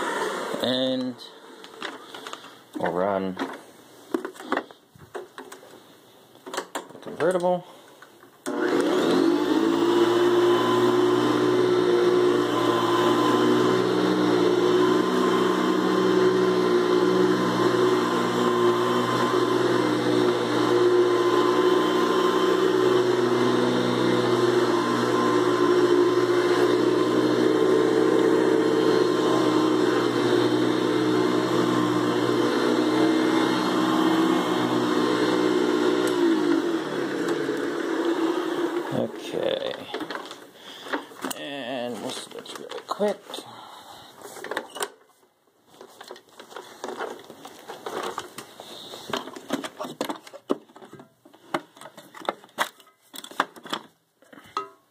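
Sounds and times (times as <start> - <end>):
vacuum cleaner running: 0.0 - 0.7, 8.4 - 40.3
vacuum whine winding down: 8.5 - 39.0.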